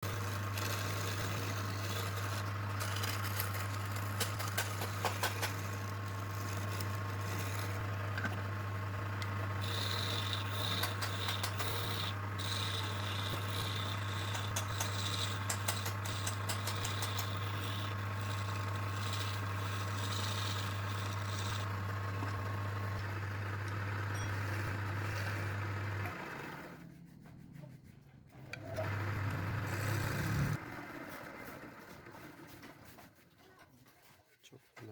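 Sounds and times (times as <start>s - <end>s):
wood scraping against machine: 0.0s - 8.5s, 9.1s - 26.8s
woodworking machine motor humming: 0.0s - 26.8s, 28.5s - 32.8s.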